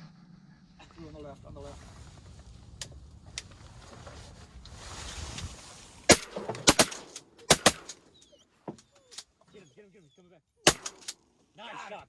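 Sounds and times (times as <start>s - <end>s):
shotgun blasts: 6.1s - 8.0s, 10.7s - 11.2s.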